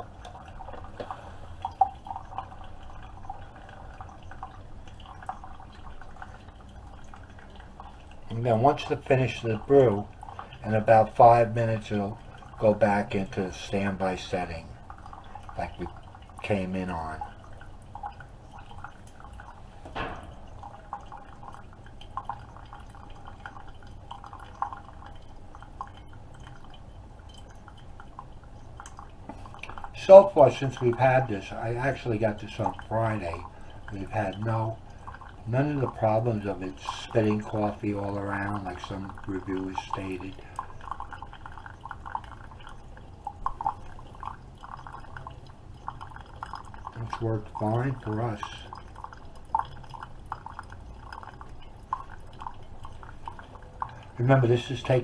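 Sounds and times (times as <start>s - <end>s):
coffee dripping into a mug: 0.0s - 55.0s
liquid splash: 0.0s - 55.0s
coffee maker hum: 29.3s - 55.0s.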